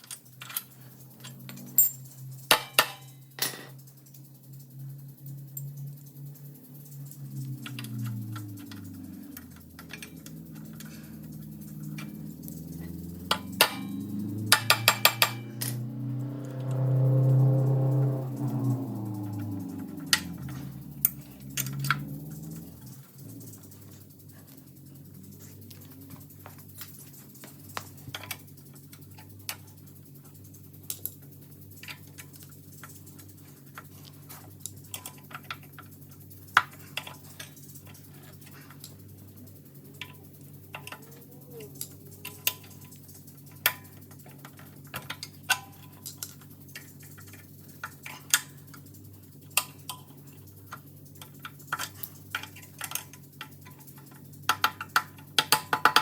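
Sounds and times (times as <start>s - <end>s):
hand tools clicking and tapping: 0.0s - 3.8s, 7.1s - 15.8s, 39.9s - 56.0s
steady low hum: 0.0s - 56.0s.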